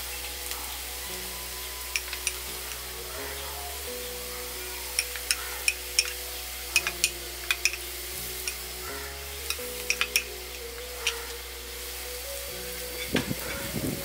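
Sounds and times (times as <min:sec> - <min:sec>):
onions frying in oil: 0:00.0 - 0:14.0
soft background music: 0:00.0 - 0:14.0
sharp crackling pops: 0:04.9 - 0:11.6.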